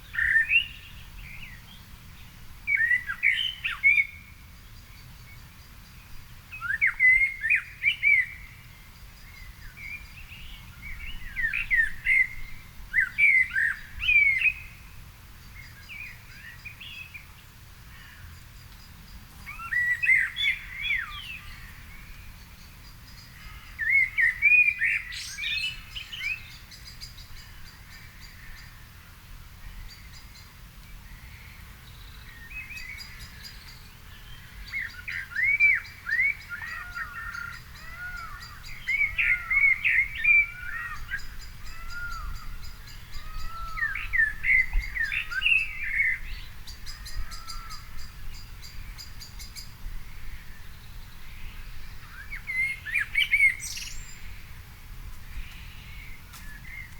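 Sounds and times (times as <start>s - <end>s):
birds chirping faintly: 0.0s - 56.9s
songbird warbling: 17.9s - 28.8s, 31.1s - 54.6s.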